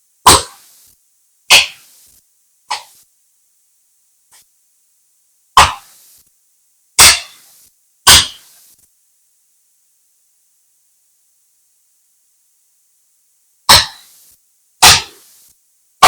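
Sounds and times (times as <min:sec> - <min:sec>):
axe chopping log: 0:05.6 - 0:05.8, 0:07.0 - 0:07.3, 0:08.1 - 0:08.4, 0:14.8 - 0:15.2.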